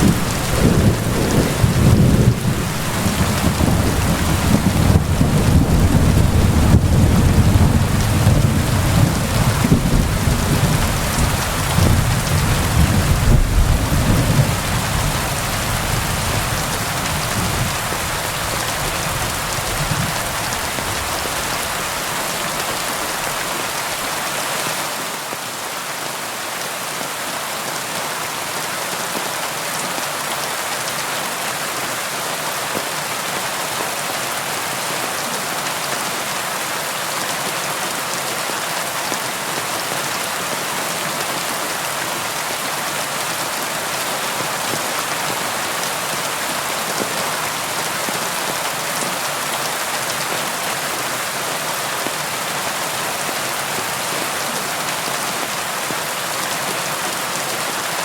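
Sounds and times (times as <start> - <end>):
rolling thunder rumble: 0.0 - 23.0
rain falling: 0.0 - 58.0.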